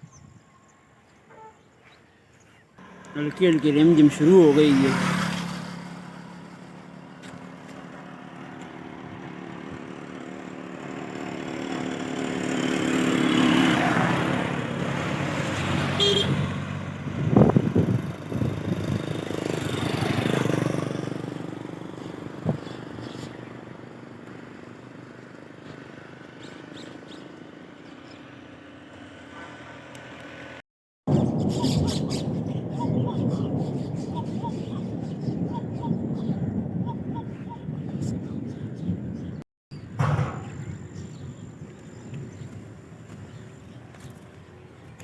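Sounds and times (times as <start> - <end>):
vehicle engine passing: 2.8 - 30.6
short horn toot: 16.0 - 16.5.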